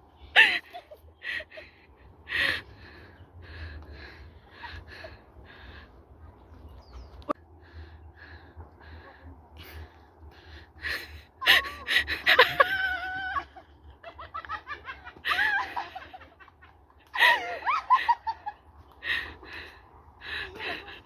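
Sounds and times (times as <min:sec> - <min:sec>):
people laughing: 0:10.8 - 0:19.6, 0:20.2 - 0:21.0.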